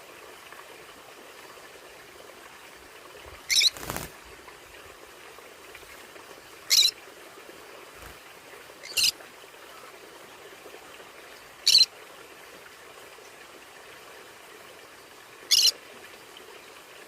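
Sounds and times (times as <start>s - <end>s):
faint steady hiss: 0.0s - 17.0s
parrot high-pitched calls: 3.5s - 3.9s, 6.7s - 7.0s, 8.8s - 9.2s, 11.6s - 11.9s, 15.5s - 15.7s.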